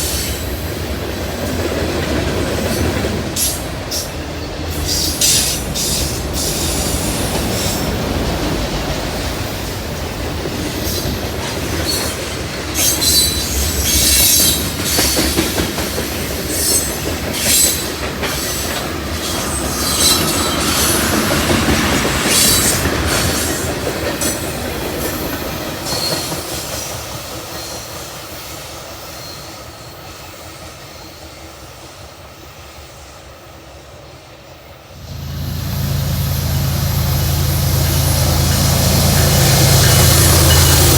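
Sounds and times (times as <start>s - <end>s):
train wheels clattering on rails: 0.0s - 32.1s.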